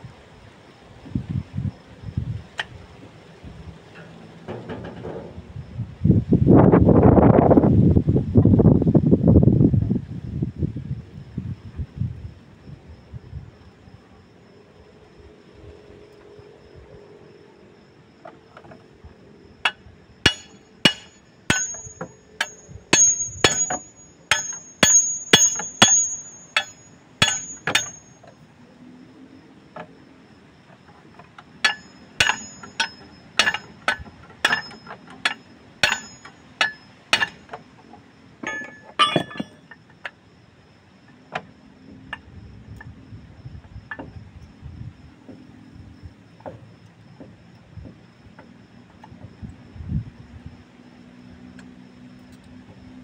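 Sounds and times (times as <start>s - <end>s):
hammer striking metal: 19.7s - 28.1s, 31.6s - 37.5s, 38.4s - 39.6s.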